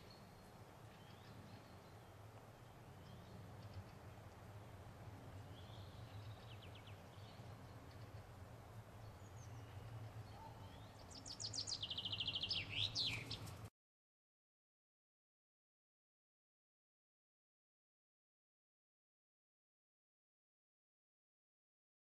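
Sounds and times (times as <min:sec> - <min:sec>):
songbird singing: 0:00.0 - 0:13.7.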